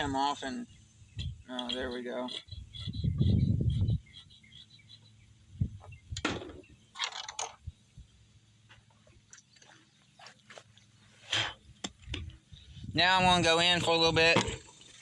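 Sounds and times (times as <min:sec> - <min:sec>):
faint bird chirps: 0:00.1 - 0:06.9
microphone handling rumble: 0:02.7 - 0:04.1, 0:05.5 - 0:06.7.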